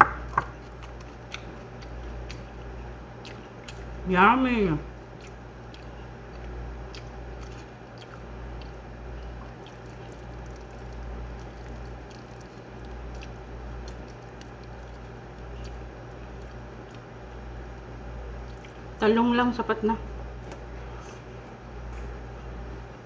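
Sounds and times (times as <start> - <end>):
steady low hum: 0.0 - 23.0
person chewing: 0.5 - 4.0, 5.1 - 19.0.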